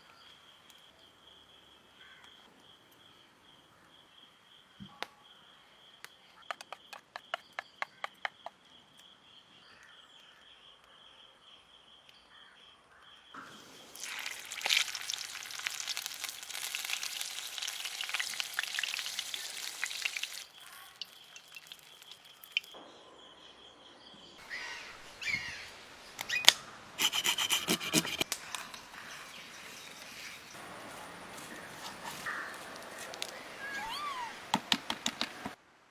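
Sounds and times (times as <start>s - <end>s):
food sizzling in hot oil: 13.4s - 22.8s.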